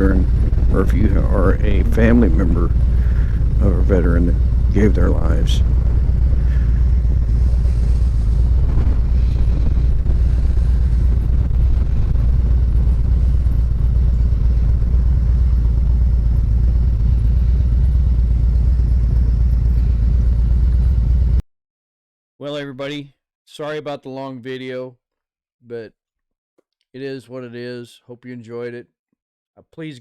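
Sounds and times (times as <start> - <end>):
motorcycle engine rumble: 0.0 - 21.4
road and wind noise: 0.0 - 21.4.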